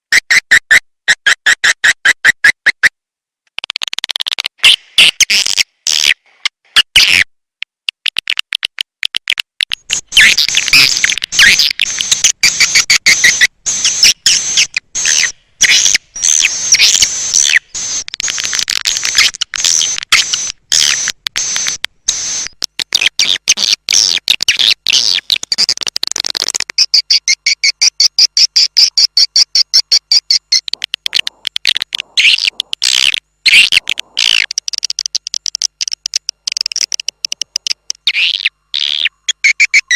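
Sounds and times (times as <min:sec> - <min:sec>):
swiftlets chattering twitters: 0:30.5 - 0:39.0.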